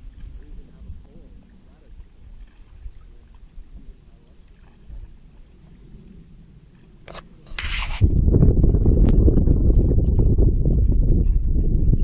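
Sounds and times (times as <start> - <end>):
low rumble: 2.8 - 12.0
rubbing scrape: 7.1 - 8.3.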